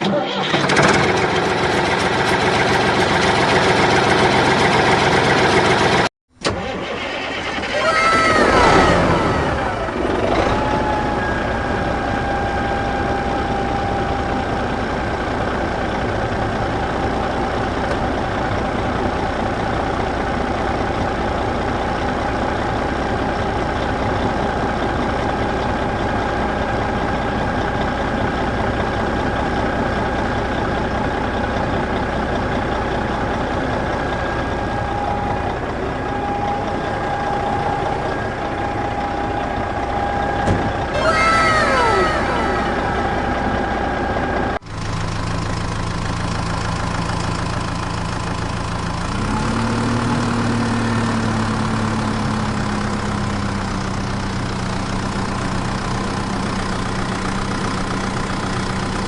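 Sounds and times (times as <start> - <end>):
vehicle engine idling: 0.2 - 59.0.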